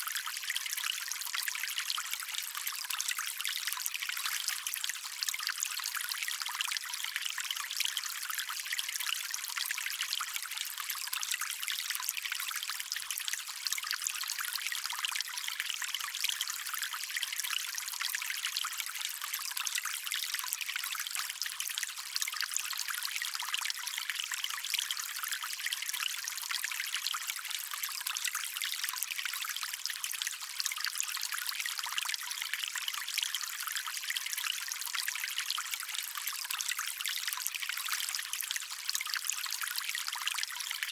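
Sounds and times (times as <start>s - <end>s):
stream trickling over stones: 0.0s - 40.9s.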